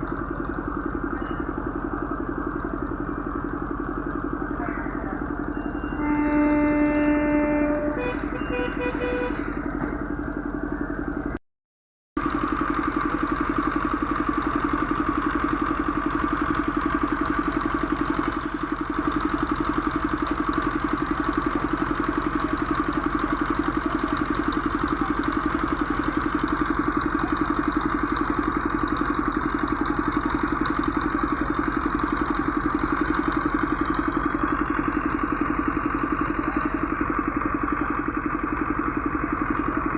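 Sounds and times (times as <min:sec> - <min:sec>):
engine idling: 0:00.0 - 0:11.4, 0:12.2 - 0:39.9
short horn beeps: 0:05.5 - 0:09.6
vehicle horn: 0:05.8 - 0:09.6.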